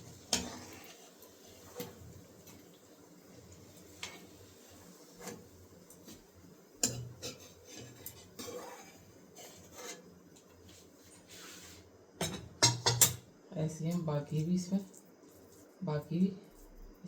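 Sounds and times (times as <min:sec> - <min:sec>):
utensil scraping cookware: 0:00.0 - 0:02.6, 0:03.9 - 0:05.5, 0:06.8 - 0:10.2
utensils clinking on cookware: 0:06.8 - 0:10.0, 0:12.2 - 0:13.2.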